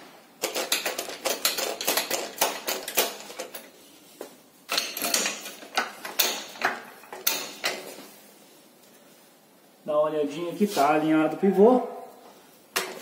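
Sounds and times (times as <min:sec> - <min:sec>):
metal tools knocking: 0:04.7 - 0:07.9.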